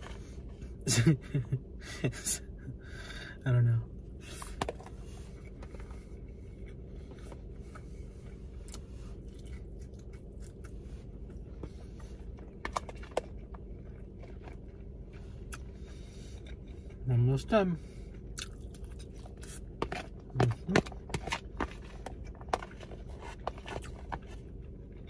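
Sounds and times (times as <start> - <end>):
low hum: 0.0 - 25.0
chewing and mouth sounds: 4.3 - 17.1, 17.8 - 25.0.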